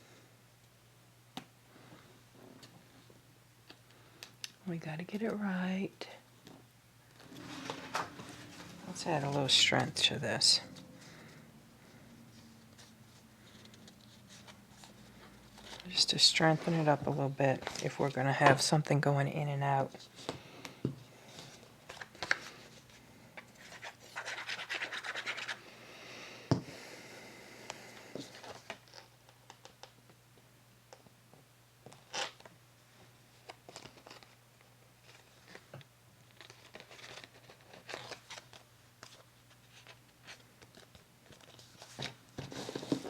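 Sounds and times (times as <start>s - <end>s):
paper rubbing on a surface: 23.6s - 25.6s.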